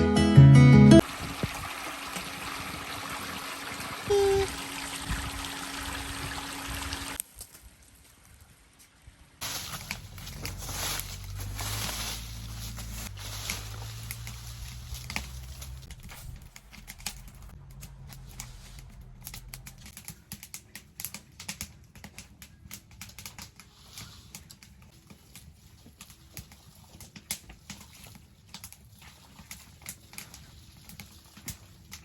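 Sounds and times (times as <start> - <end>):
sharp light clicks and crackles: 13.3 - 32.0.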